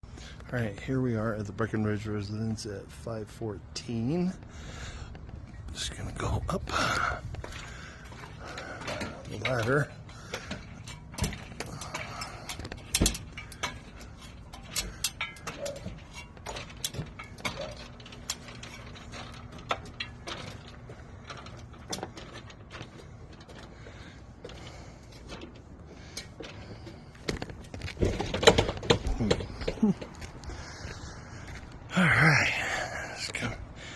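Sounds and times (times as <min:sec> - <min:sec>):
knocks of climbing a ladder: 0:06.9 - 0:30.9.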